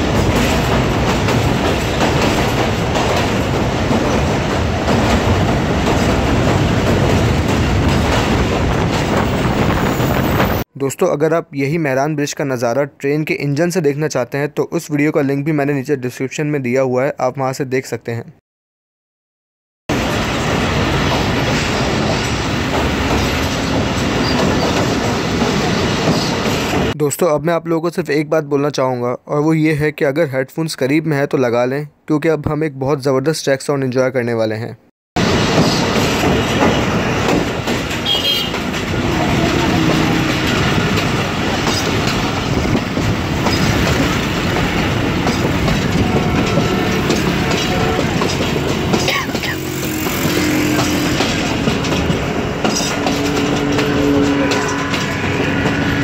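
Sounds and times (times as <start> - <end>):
train wheels rumbling on bridge track: 0.0 - 10.6, 19.9 - 27.0, 35.2 - 56.0.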